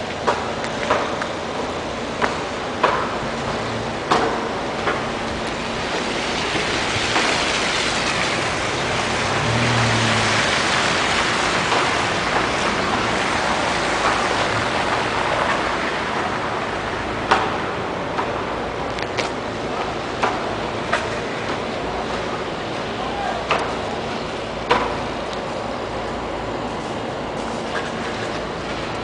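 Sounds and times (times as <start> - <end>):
car passing with tyre hiss: 6.1 - 16.6.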